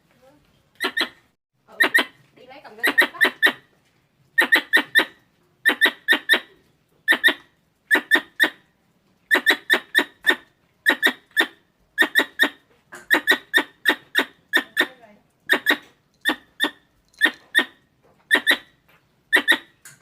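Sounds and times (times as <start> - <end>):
squirrel chirping: 0.8 - 3.7, 4.4 - 8.6, 9.3 - 20.0.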